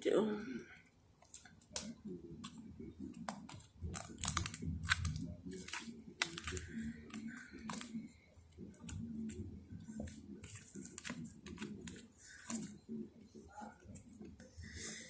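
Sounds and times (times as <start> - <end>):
slime squishing and popping: 3.2 - 8.0.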